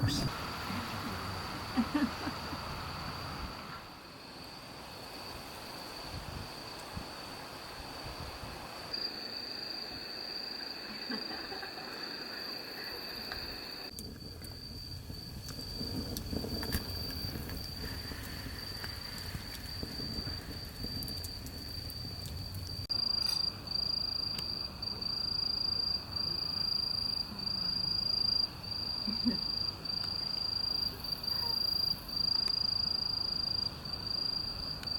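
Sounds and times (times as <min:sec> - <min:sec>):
crickets trilling: 0:00.0 - 0:34.9
faint crackles: 0:10.6 - 0:23.4.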